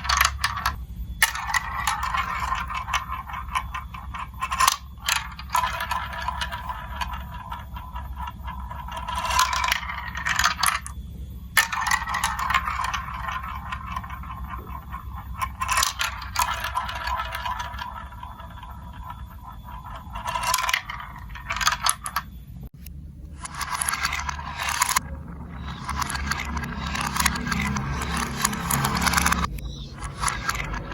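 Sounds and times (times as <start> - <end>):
marbles rattling on plastic track: 0.0 - 22.3, 23.4 - 30.9.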